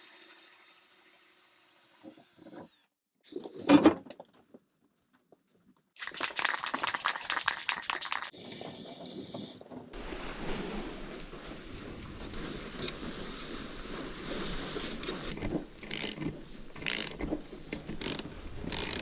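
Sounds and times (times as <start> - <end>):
power tool rasping: 14.9 - 19.0.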